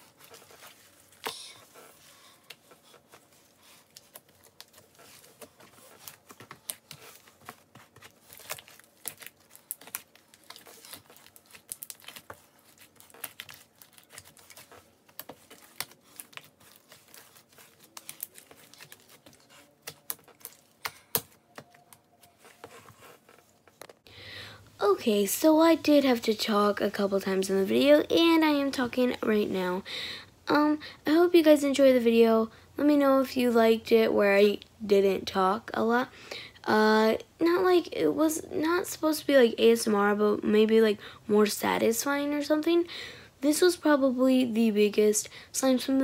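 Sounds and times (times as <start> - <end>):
slime being kneaded by hand: 0.0 - 23.8.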